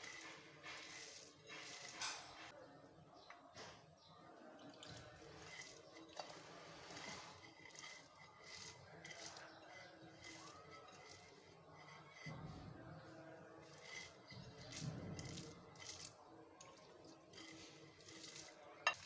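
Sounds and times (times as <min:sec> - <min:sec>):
utensils clicking against dishes: 0:04.9 - 0:12.3, 0:17.3 - 0:19.0.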